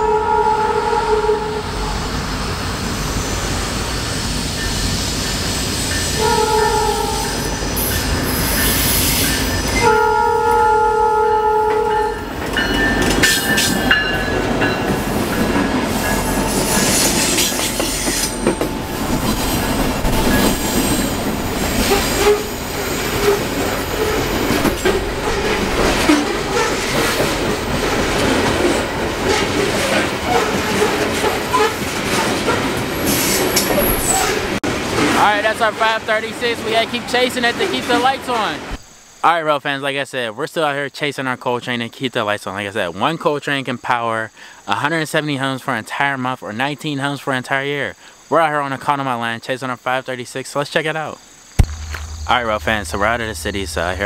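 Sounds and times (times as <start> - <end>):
train horn blast: 0.0 - 2.0, 6.1 - 7.8, 9.8 - 12.3
locomotives passing: 12.2 - 38.8, 51.6 - 54.0
freight cars rumbling clatter: 51.6 - 54.0.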